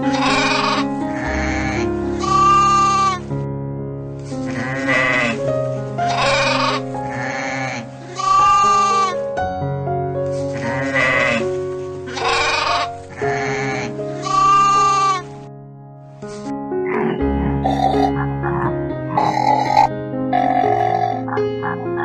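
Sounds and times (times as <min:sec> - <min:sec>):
goats bleating: 0:00.0 - 0:03.2, 0:04.5 - 0:05.4, 0:06.1 - 0:09.2, 0:10.6 - 0:11.4, 0:12.1 - 0:15.3
background music: 0:00.0 - 0:22.0.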